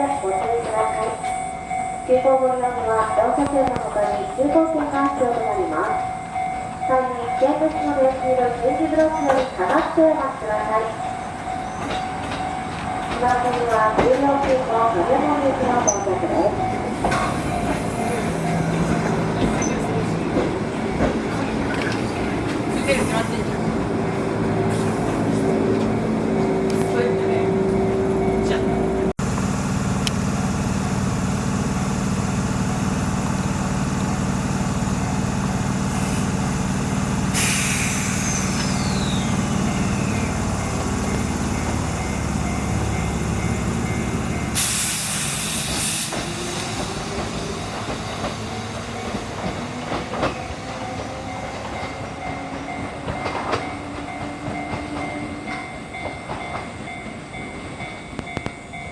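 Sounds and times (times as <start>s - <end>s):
electric train humming: 0.0s - 58.9s
air hiss: 37.3s - 39.1s, 44.6s - 46.6s.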